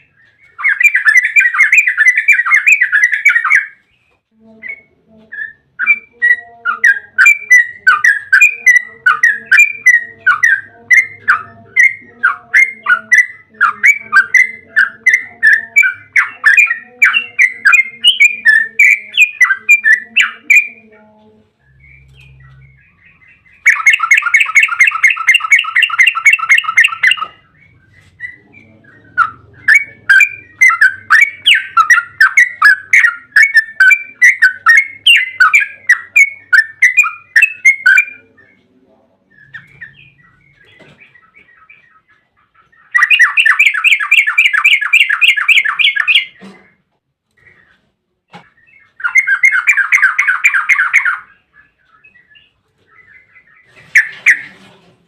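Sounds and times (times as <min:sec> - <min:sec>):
buzzy bird trill: 0:00.0 - 0:38.6, 0:48.5 - 0:54.6
bird chattering song: 0:00.0 - 0:46.8, 0:47.4 - 0:54.6.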